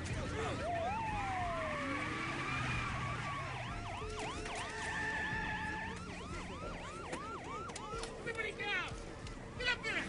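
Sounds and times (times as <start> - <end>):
police sirens yelping: 0.0 - 10.0
siren wail: 0.4 - 8.8.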